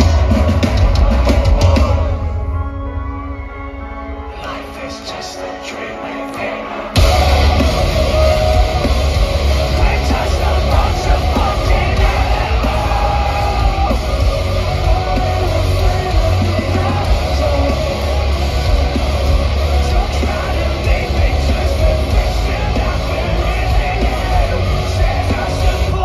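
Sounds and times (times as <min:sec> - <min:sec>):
metal band playing live: 0:00.0 - 0:26.0
shouted vocals: 0:06.2 - 0:26.0.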